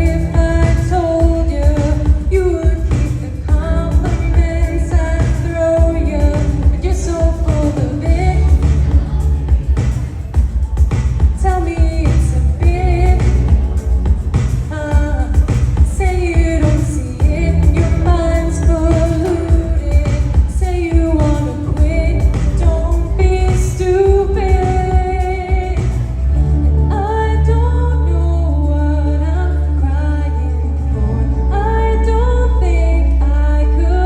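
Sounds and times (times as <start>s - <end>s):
held low bass: 0.0s - 34.0s
pop song singing: 0.0s - 34.0s
drum beat: 0.3s - 26.2s.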